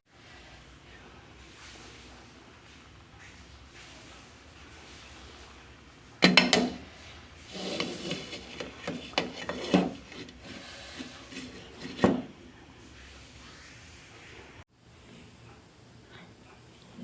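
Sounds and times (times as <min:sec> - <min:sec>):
utensil scraping and stirring food: 0:01.5 - 0:13.8
utensil knocking against pan: 0:06.2 - 0:06.9.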